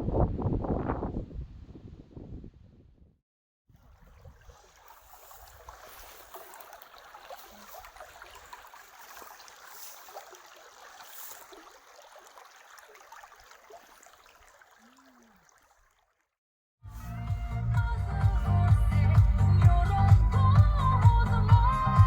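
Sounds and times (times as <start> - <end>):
stream running water: 3.7 - 16.4.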